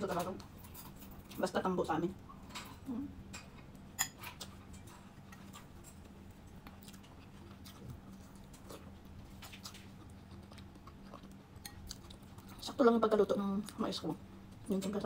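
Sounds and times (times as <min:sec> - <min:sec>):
low steady hum: 0:00.0 - 0:15.0
person chewing food: 0:02.3 - 0:12.7.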